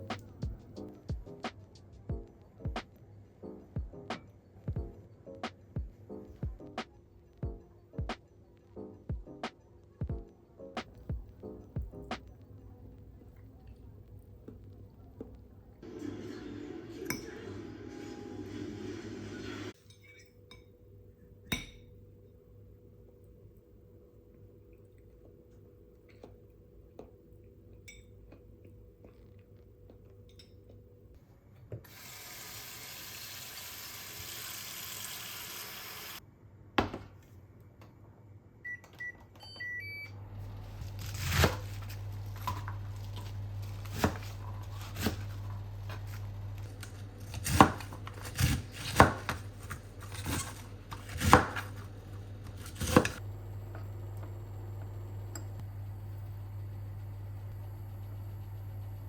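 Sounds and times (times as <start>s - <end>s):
appliance humming: 15.6s - 19.8s, 31.8s - 36.2s, 39.4s - 59.0s
dishes and utensils clinking: 19.8s - 20.8s.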